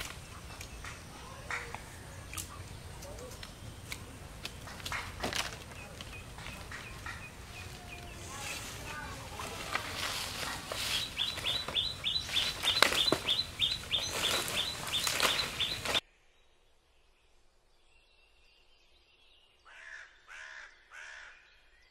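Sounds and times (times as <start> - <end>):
bird chirping rapidly: 0.0 - 16.0
crow cawing: 19.7 - 21.4.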